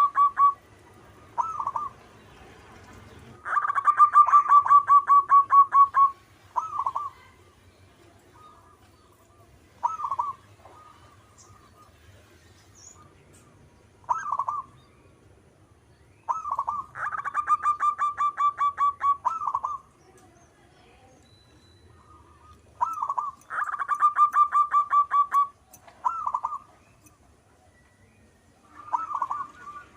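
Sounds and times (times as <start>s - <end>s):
zebra dove cooing: 0.0s - 0.6s, 1.2s - 2.0s, 3.4s - 7.4s, 8.3s - 11.8s, 14.0s - 14.8s, 16.3s - 19.9s, 22.0s - 26.7s, 28.6s - 29.9s.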